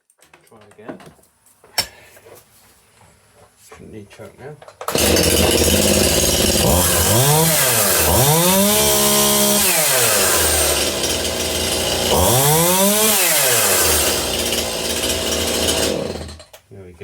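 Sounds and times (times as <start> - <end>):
chainsaw idling and revving: 4.9 - 16.5.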